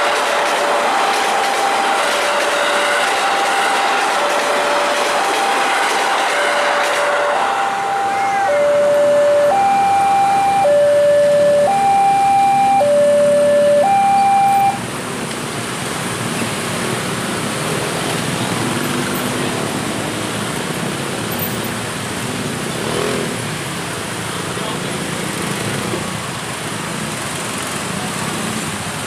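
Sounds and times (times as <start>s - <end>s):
two-tone hi-lo siren: 0.0s - 4.0s, 4.6s - 14.8s.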